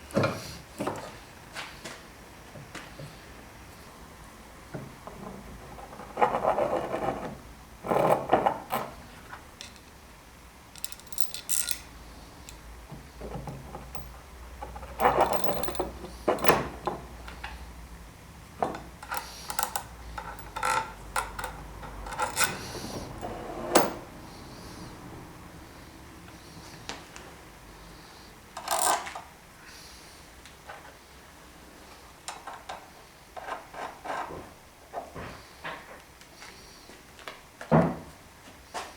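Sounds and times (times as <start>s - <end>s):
parts clattering and scraping: 10.8s - 11.9s, 12.5s - 17.6s, 18.6s - 24.1s.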